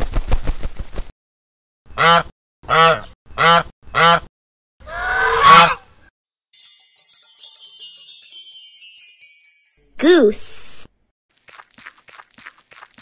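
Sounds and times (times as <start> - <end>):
high twinkling chime: 6.6 - 10.8.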